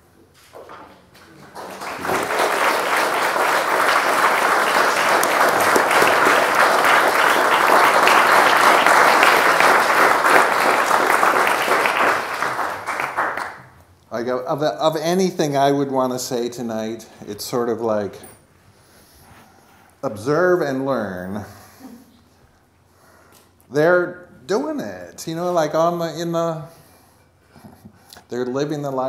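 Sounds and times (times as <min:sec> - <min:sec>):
audience applauding: 0:01.1 - 0:13.8.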